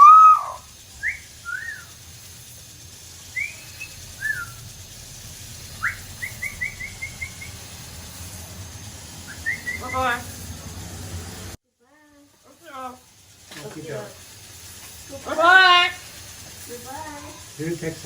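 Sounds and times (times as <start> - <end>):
parrot whistling and chirping: 0.0 - 2.0, 3.2 - 4.7, 5.7 - 7.8, 9.2 - 10.3.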